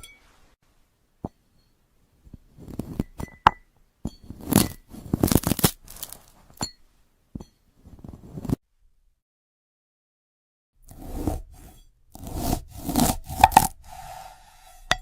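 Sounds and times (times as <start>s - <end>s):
crackling crunches of fruit cut: 4.5s - 6.2s.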